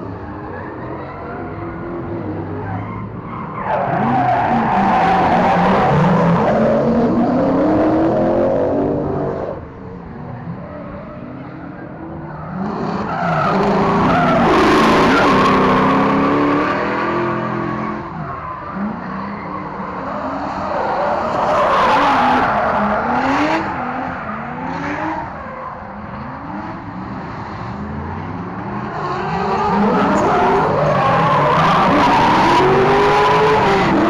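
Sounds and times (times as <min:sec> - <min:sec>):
tyres squealing and skidding: 0:00.1 - 0:09.6, 0:10.3 - 0:26.8, 0:28.1 - 0:34.0
car engine revving hard: 0:26.2 - 0:34.0.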